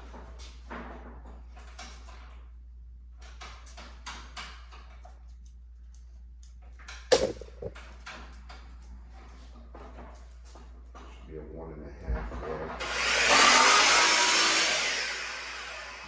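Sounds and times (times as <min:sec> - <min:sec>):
wood or tools scraping and rustling: 0:06.9 - 0:11.3
sharp loud knock: 0:07.1 - 0:07.7.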